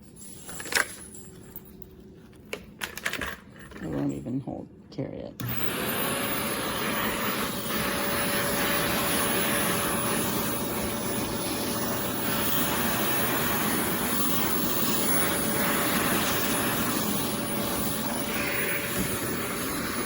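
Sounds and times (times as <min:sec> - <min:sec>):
canister vacuum running: 0:05.4 - 0:20.0.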